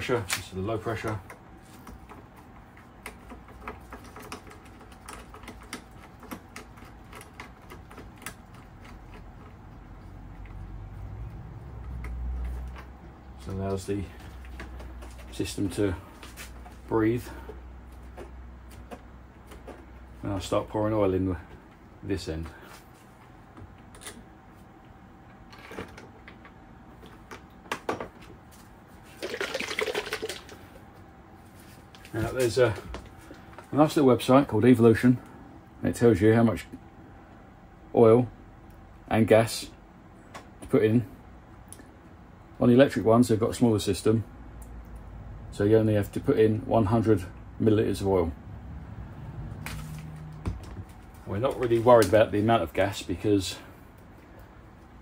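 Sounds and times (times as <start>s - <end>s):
rustling and scraping: 11.3s - 20.2s, 31.4s - 33.8s, 49.3s - 52.6s.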